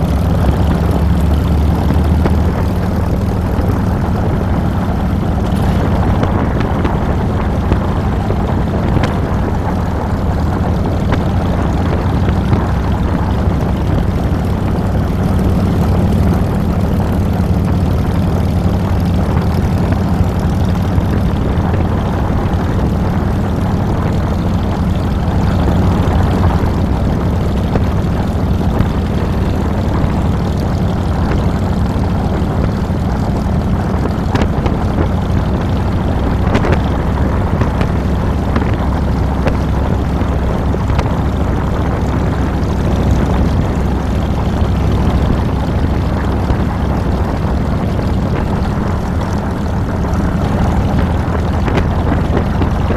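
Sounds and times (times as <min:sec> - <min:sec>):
motorcycle engine droning: 0:00.0 - 0:52.9.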